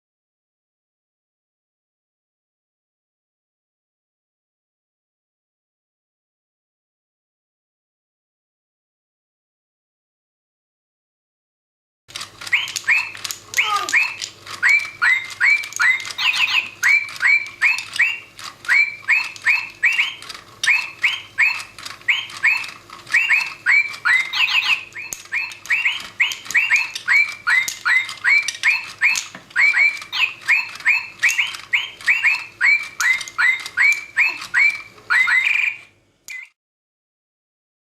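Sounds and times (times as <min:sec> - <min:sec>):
toy parrot chirping: 0:12.2 - 0:36.6.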